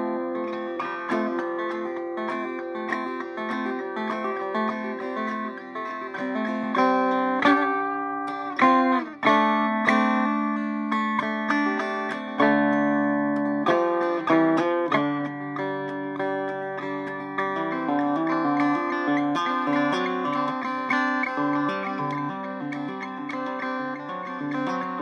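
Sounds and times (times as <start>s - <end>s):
banjo picking: 0.0s - 25.0s.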